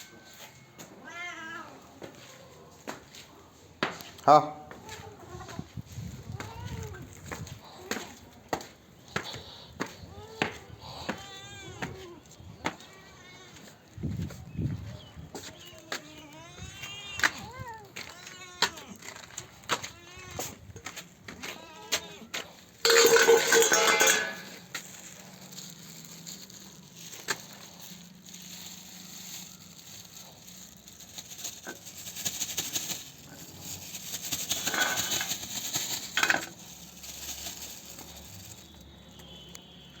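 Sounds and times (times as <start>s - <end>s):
cat meowing: 0.9s - 1.9s, 15.6s - 19.1s
light clinking and rattling: 22.8s - 28.1s, 30.2s - 38.6s.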